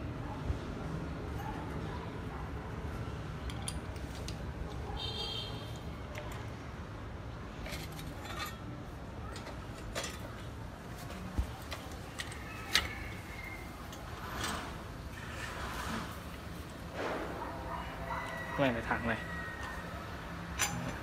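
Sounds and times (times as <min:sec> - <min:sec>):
metal clicks and clinks of tools: 0:03.4 - 0:04.8, 0:07.6 - 0:08.7, 0:09.3 - 0:10.5, 0:11.6 - 0:14.7, 0:20.5 - 0:21.0.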